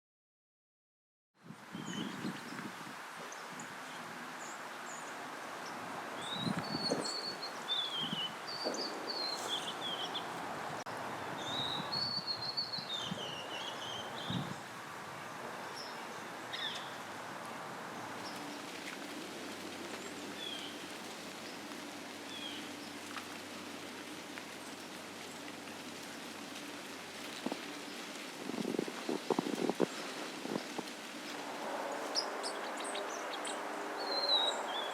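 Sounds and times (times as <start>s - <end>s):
outdoor background noise: 1.4s - 34.9s
small birds singing: 1.7s - 17.2s, 17.9s - 23.8s, 28.8s - 34.9s.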